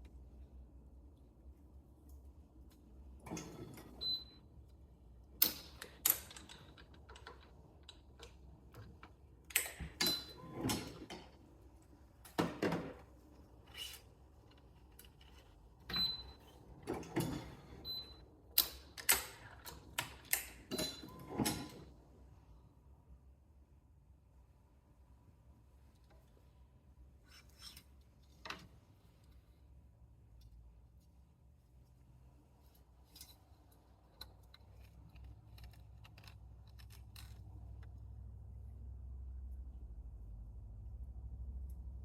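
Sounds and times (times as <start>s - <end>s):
clicks and knocks of stringing tools: 5.4s - 11.4s, 32.7s - 38.1s.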